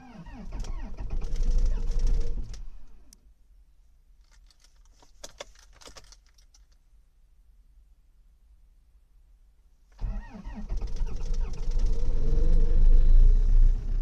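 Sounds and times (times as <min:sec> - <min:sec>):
car engine cold start: 0:00.0 - 0:02.6, 0:10.0 - 0:14.0.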